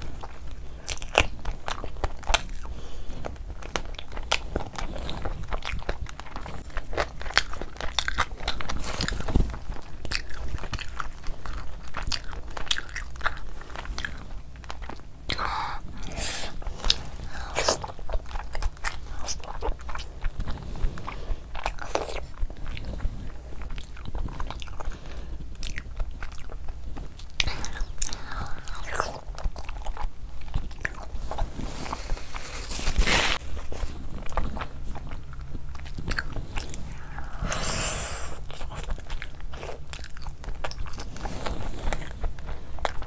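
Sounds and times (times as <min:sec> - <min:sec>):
chewing mouth clicks and smacks: 0:00.1 - 0:15.5, 0:38.4 - 0:43.0
noisy squelches: 0:31.1 - 0:39.9.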